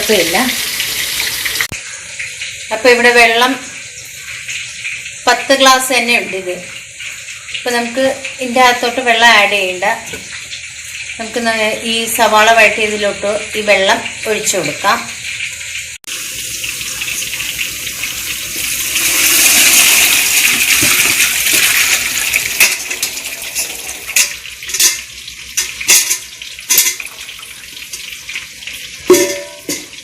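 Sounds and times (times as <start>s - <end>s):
stock pouring into a pot: 16.1s - 24.8s
metallic clinks against a pot: 23.6s - 27.2s, 29.1s - 30.0s.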